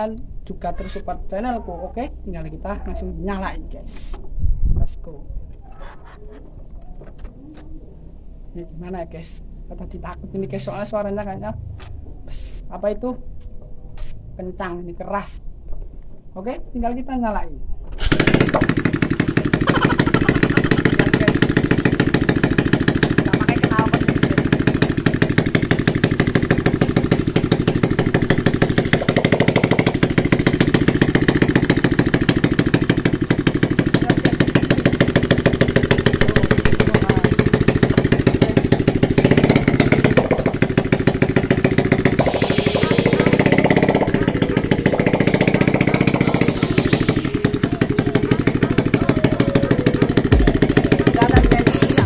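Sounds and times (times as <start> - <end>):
motorcycle engine open exhaust: 18.0 - 52.0.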